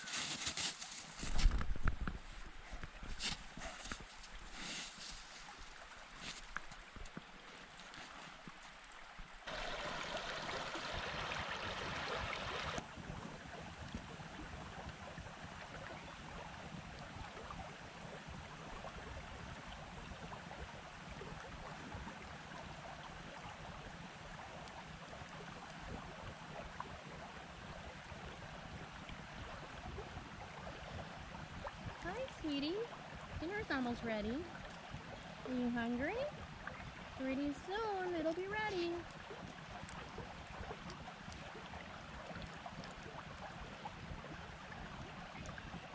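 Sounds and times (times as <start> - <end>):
creek water rushing: 2.4 - 45.9.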